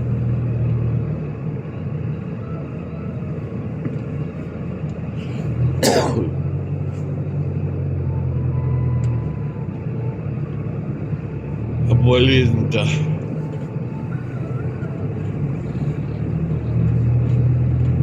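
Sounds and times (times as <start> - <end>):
diesel car engine running: 0.0 - 18.0
person coughing: 5.8 - 6.4.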